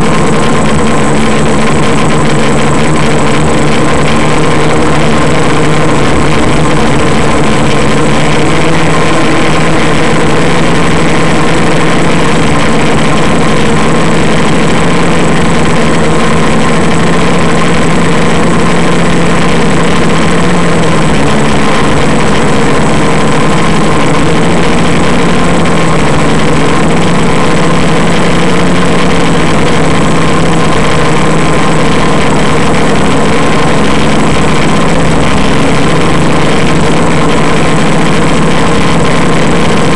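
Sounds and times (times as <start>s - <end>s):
drone motors humming and whining: 0.0s - 39.9s.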